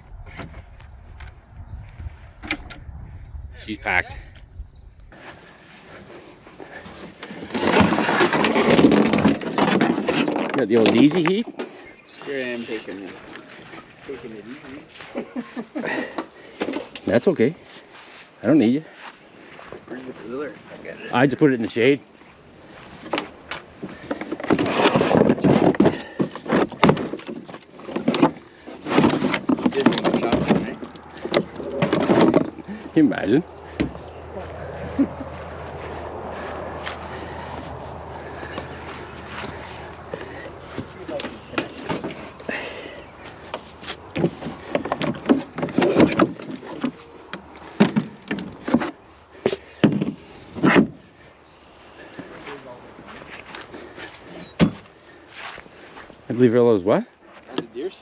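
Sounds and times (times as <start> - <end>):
knocks and clatter of hard objects: 7.4 - 11.7, 23.9 - 32.8, 39.2 - 51.0
knocks and clunks of hard objects: 39.3 - 51.0.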